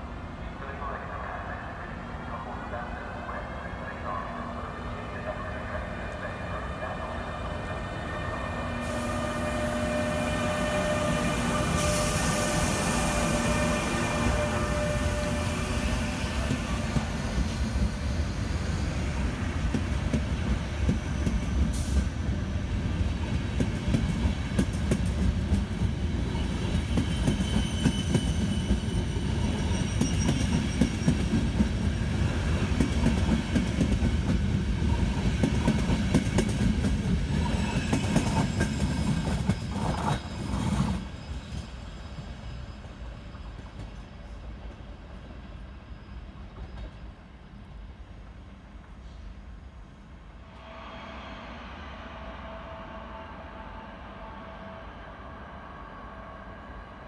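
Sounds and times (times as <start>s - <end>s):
train wheels rumbling: 6.7s - 44.8s.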